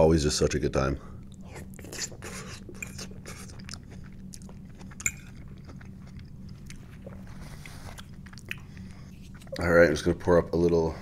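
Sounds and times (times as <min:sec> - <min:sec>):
wet chewing mouth clicks: 0:01.3 - 0:09.6.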